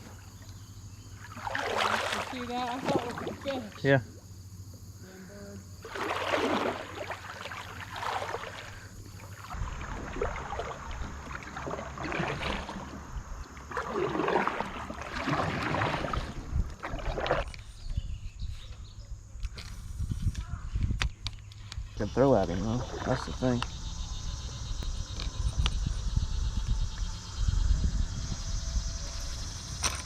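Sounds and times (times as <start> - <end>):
kayak paddle splashing water: 0.0 - 4.2, 5.8 - 17.8, 22.3 - 23.9
low rumble: 21.9 - 29.9.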